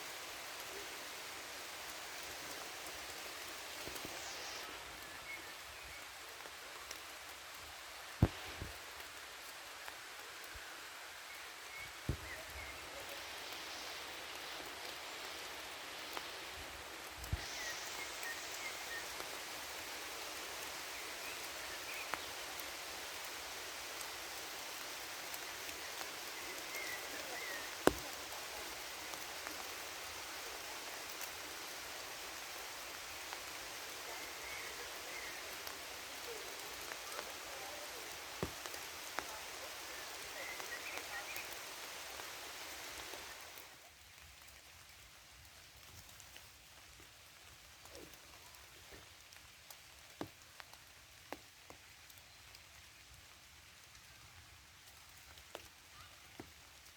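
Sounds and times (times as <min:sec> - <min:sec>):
rain hissing in forest: 0:00.0 - 0:56.9
single raindrop striking close: 0:08.2 - 0:08.8, 0:27.7 - 0:28.2.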